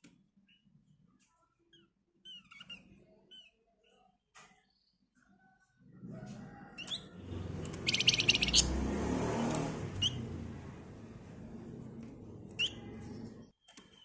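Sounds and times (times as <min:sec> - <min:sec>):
songbird chirping and trilling: 0:00.4 - 0:05.8, 0:06.8 - 0:09.0, 0:09.6 - 0:10.4, 0:12.4 - 0:14.0
low rumbling noise: 0:07.2 - 0:13.5.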